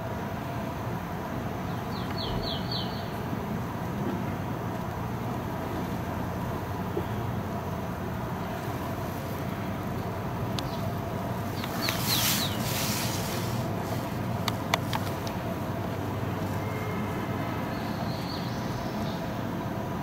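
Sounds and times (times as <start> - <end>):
distant traffic rumble: 0.0 - 20.0
bird chirps: 1.9 - 3.1, 11.6 - 12.7.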